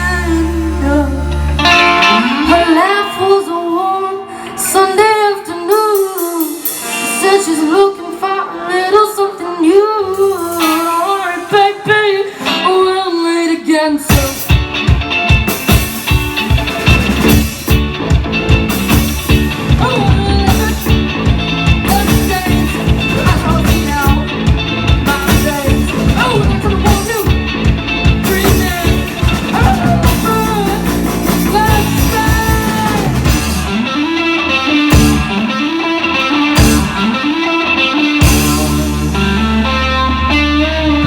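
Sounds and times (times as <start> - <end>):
bass guitar: 0.0 - 7.9, 14.0 - 41.0
lead guitar: 0.0 - 41.0
drumbeat: 14.1 - 33.8.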